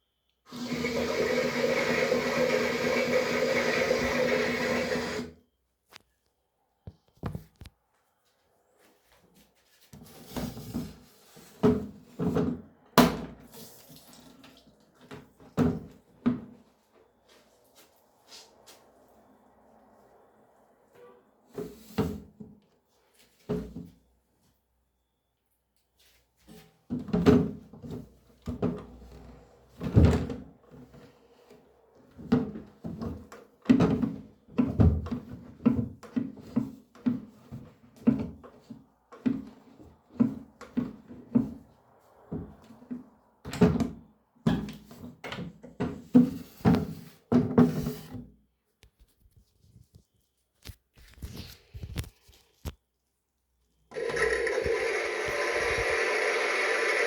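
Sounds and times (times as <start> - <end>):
small electric motor buzzing: 53.9 - 57.0.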